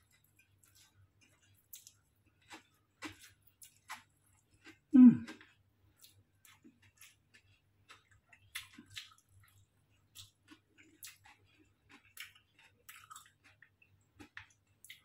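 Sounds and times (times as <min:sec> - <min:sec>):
chewing noodles: 0:00.0 - 0:15.0.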